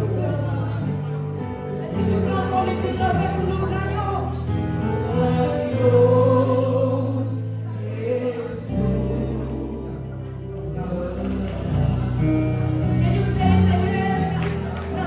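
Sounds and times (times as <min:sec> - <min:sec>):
voices singing together: 0:04.8 - 0:12.3.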